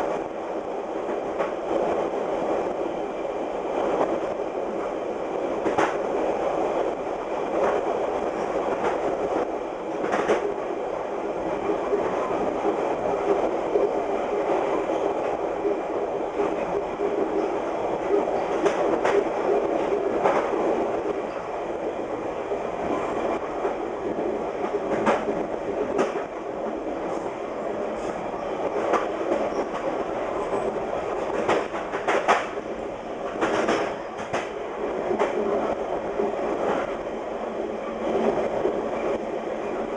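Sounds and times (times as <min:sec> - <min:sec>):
train wheels rumbling on track: 0:00.0 - 0:39.9
wheels clicking on rail joints: 0:22.8 - 0:37.0.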